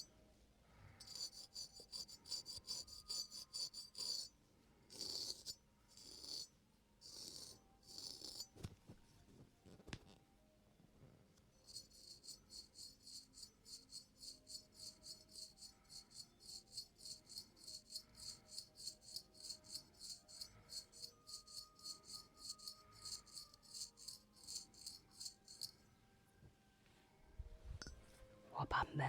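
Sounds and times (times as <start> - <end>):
faint background music: 0.0 - 29.0
razor scraping skin: 1.0 - 4.3, 4.9 - 8.6, 11.7 - 25.7.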